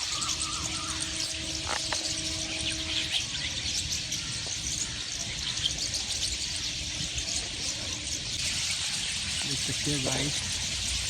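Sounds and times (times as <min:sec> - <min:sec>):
flock of small birds chirping: 0:00.0 - 0:11.0
steady low hum: 0:00.0 - 0:11.0.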